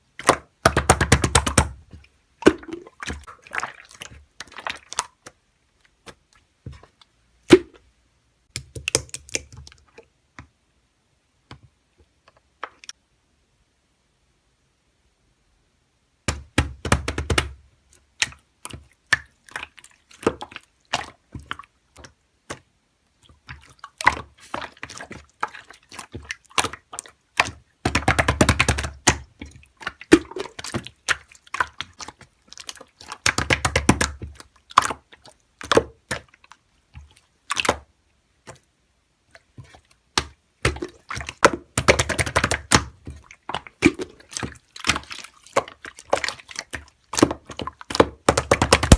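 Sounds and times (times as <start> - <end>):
slime clicking and popping: 8.5 - 9.8, 26.6 - 35.0, 40.1 - 48.9.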